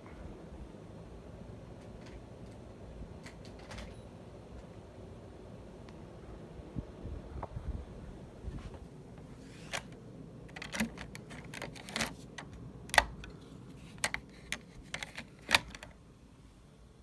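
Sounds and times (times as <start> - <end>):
steady low hum: 0.0 - 17.0
sharp clicks and light rattles: 9.7 - 16.0.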